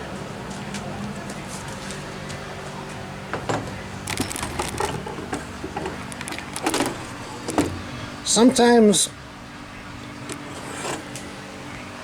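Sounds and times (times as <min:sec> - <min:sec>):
metal clicks and scrapes: 0:04.1 - 0:07.9.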